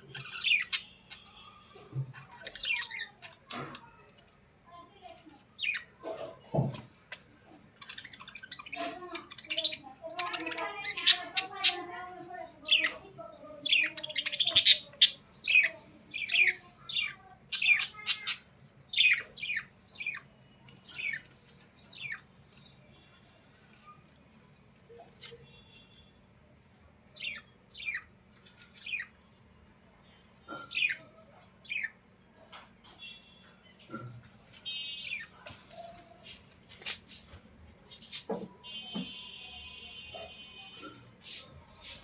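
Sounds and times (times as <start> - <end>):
bird chirping and squawking: 0.0 - 3.5, 7.7 - 11.9, 13.6 - 22.3, 27.2 - 29.2, 30.5 - 32.0, 34.6 - 36.0.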